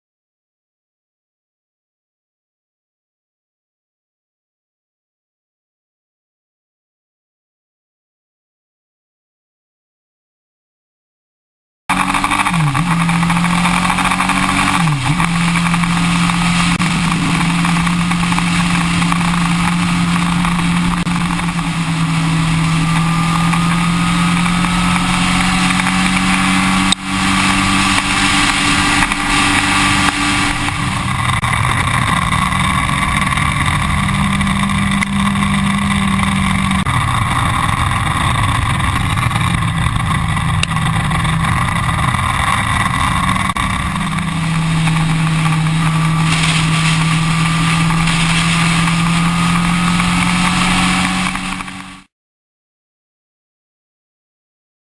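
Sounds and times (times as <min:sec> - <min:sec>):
sport bike engine running: 0:11.9 - 0:52.1.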